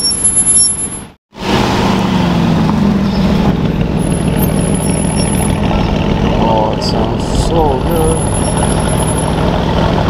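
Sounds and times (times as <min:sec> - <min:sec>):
car engine at low revs: 0:01.4 - 0:10.0.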